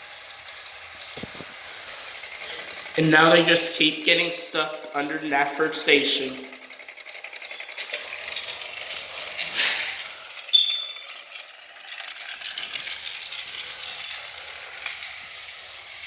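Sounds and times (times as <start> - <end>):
toy train rattling and clicking: 0.0 - 16.0
short high squeak: 10.5 - 11.2.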